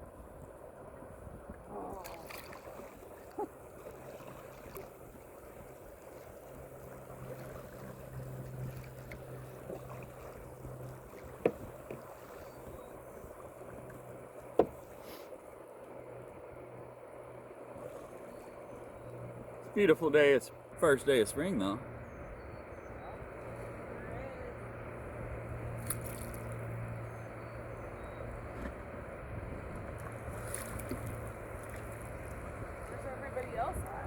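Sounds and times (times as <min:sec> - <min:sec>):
water washing around kayak hull: 0:00.0 - 0:34.0
sharp knocks: 0:14.6 - 0:14.8.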